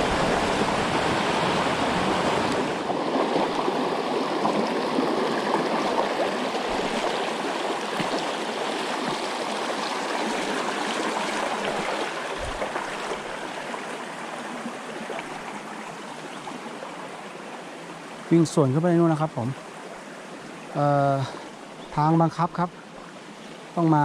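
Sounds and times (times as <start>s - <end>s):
stream rushing over stones: 0.0s - 24.0s
soft low thump: 12.4s - 12.8s.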